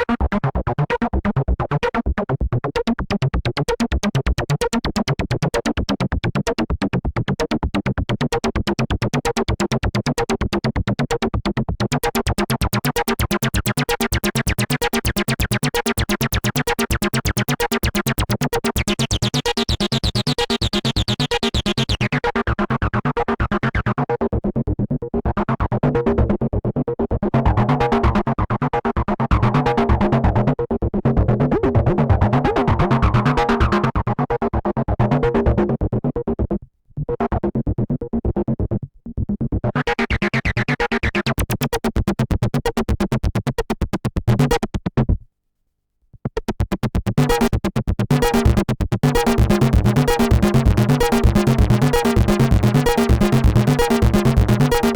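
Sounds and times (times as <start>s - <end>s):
synthesizer bass line: 11.4s - 23.0s, 29.3s - 36.4s, 39.3s - 44.7s, 46.3s - 54.9s.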